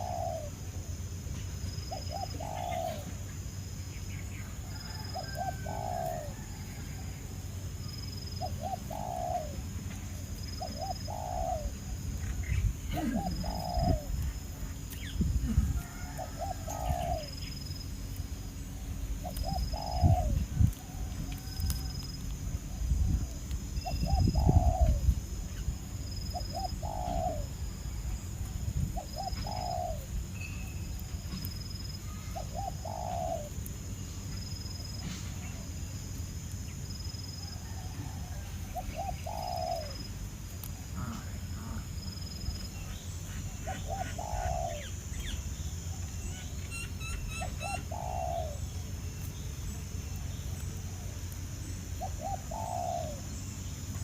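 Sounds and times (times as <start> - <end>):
dove cooing: 0.0 - 0.6, 1.9 - 3.2, 4.6 - 7.0, 8.3 - 17.6, 19.2 - 21.8, 22.7 - 25.2, 26.2 - 27.8, 28.9 - 30.2, 32.1 - 33.6, 37.5 - 40.1, 43.3 - 45.4, 46.7 - 48.8, 52.0 - 53.4
small birds chirping: 0.0 - 54.0.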